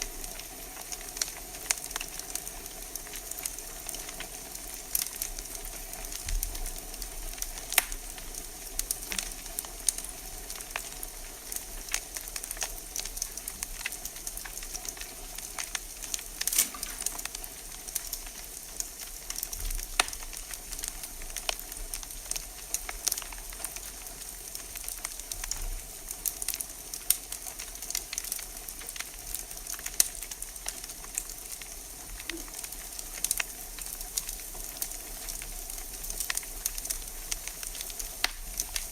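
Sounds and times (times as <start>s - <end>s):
steady fire hiss: 0.0s - 38.9s
wood fire crackling: 0.0s - 38.9s
sharp pops: 16.4s - 17.5s.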